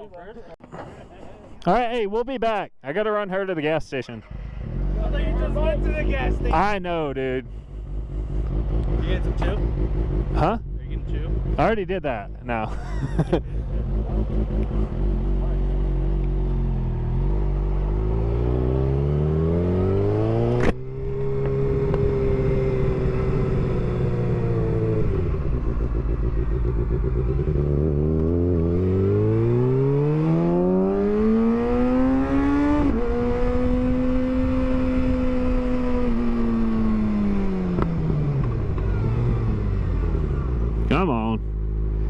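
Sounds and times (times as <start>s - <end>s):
motorcycle engine accelerating: 4.2s - 42.0s.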